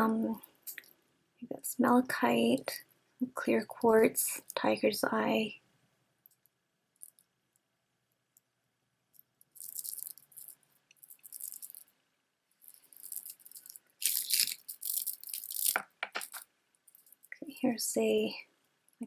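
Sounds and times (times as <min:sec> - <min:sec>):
beads rattling and clicking: 0:09.1 - 0:12.0, 0:12.6 - 0:17.4.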